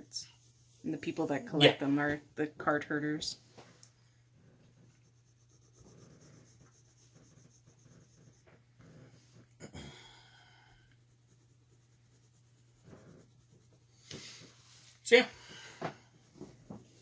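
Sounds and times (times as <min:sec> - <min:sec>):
pencil scratching on paper: 0:04.4 - 0:09.3, 0:10.9 - 0:14.9.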